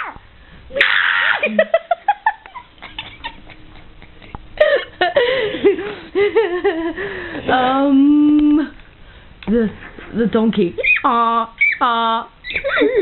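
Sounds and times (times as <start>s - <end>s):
person laughing with gasps: 2.9s - 7.4s, 12.6s - 13.0s.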